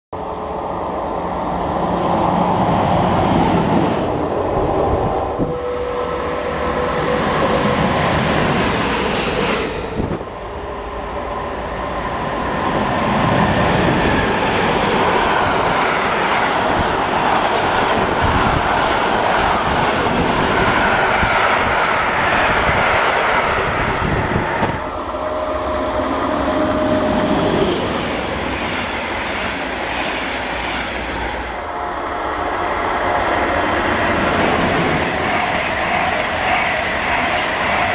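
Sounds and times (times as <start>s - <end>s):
train wheels rumbling on rail: 0.2s - 37.9s.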